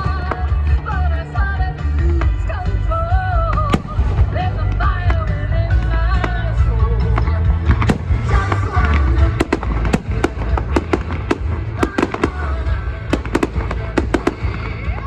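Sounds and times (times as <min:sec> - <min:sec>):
continuous deep rumble: 0:00.0 - 0:15.0
fireworks bangs and pops: 0:03.2 - 0:15.0.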